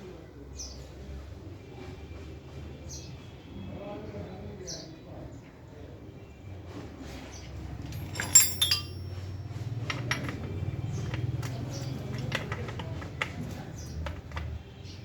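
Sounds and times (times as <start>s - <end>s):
metal tools clinking: 7.9s - 11.4s.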